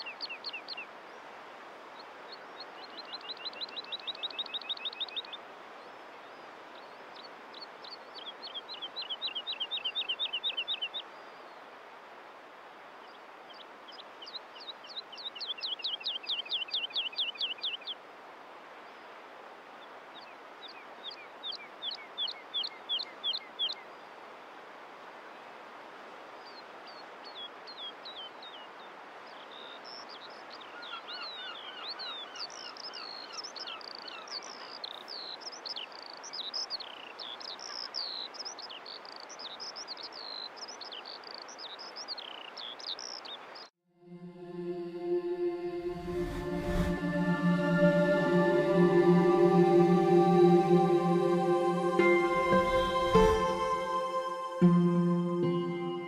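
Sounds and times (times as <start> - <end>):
steady background hiss: 44.1 - 56.0.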